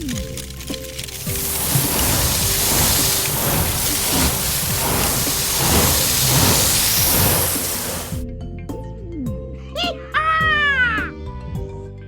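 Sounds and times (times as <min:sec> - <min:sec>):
loud steady hissing: 0:01.0 - 0:08.2.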